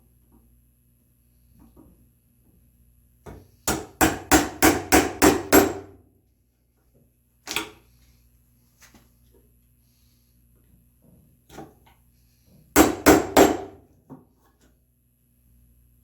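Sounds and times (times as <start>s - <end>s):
mallet striking chisel: 3.7s - 6.0s, 12.8s - 13.8s.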